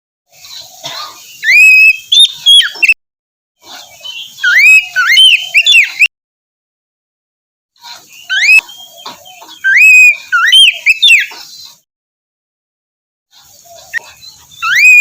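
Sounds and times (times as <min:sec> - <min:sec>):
bird singing whistled phrases: 0:01.4 - 0:03.0, 0:04.1 - 0:06.1, 0:08.2 - 0:08.7, 0:09.6 - 0:11.3, 0:14.6 - 0:15.0.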